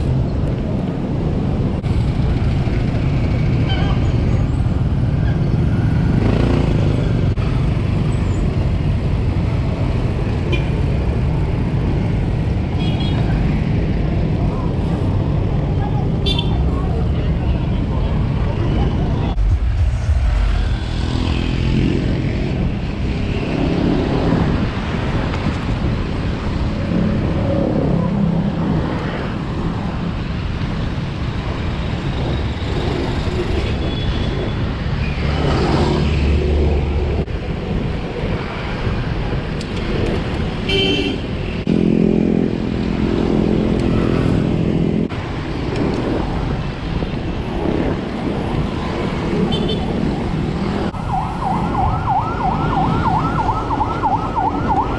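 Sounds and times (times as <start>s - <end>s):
motor vehicles passing: 0.0s - 54.9s
wind buffeting microphone: 43.6s - 54.9s.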